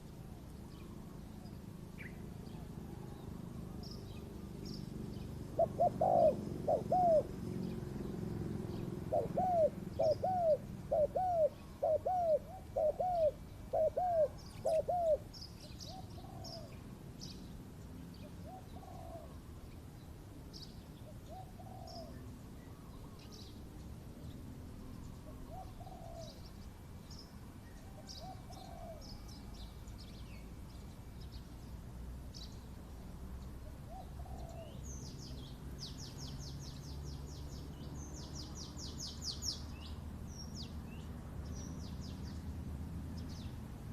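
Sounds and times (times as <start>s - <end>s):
small birds chirping: 0.0s - 43.9s
doves cooing: 5.1s - 15.3s, 15.9s - 16.8s, 18.4s - 19.5s, 21.1s - 23.2s, 25.2s - 26.5s, 27.8s - 29.5s, 33.6s - 34.8s.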